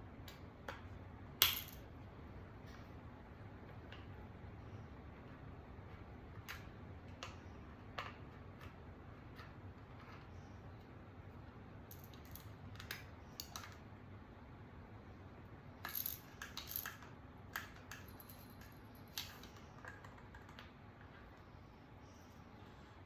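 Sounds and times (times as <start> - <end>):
small metal parts clicking: 11.9 - 13.8, 15.8 - 20.0.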